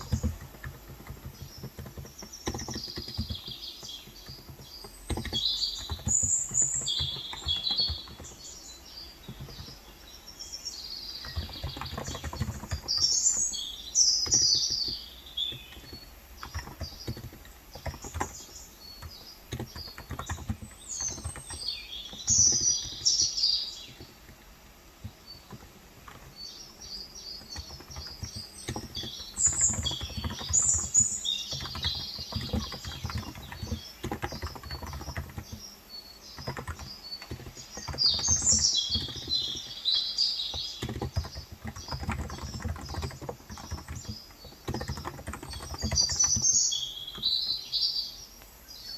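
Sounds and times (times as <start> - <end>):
soft keyboard key strokes: 0.0 - 8.4, 27.4 - 35.7, 40.5 - 46.5
birds chirping: 0.0 - 48.9.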